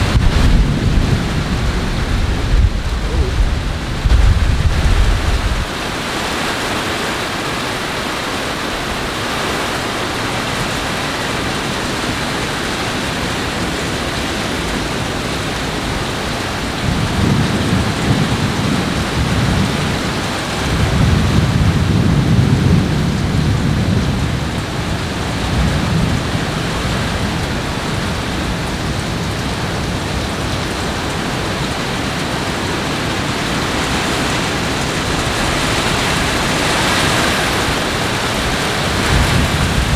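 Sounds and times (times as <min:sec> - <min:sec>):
thunder rumbling: 0:00.0 - 0:06.3, 0:15.6 - 0:39.9
heavy rain: 0:00.0 - 0:39.9.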